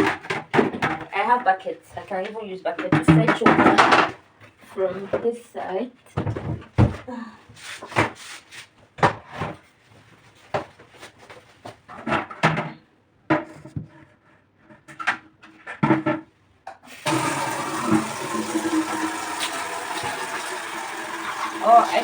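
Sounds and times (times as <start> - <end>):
objects knocking and clattering: 0.0 - 1.6, 2.2 - 5.3, 6.1 - 7.1, 10.4 - 14.0, 14.6 - 20.4.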